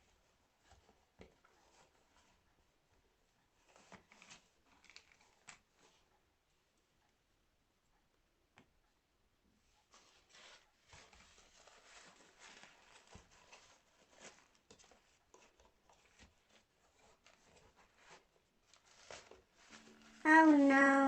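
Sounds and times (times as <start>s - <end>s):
diaper rustling and crackling: 10.0s - 21.0s.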